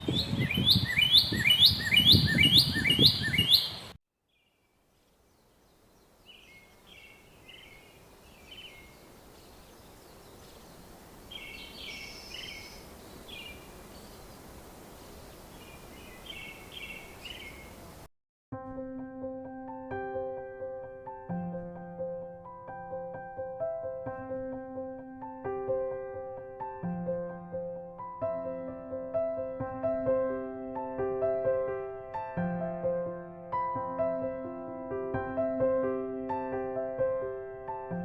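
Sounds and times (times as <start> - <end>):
scattered bird chirps: 0.0 - 14.4
loud repeated bird call: 0.2 - 4.0
outdoor hiss: 4.8 - 18.1.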